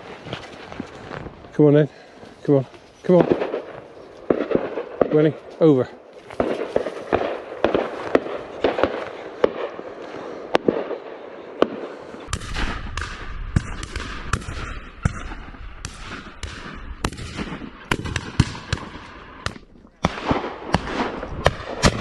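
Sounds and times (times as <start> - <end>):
shotgun reports: 2.5 - 9.7.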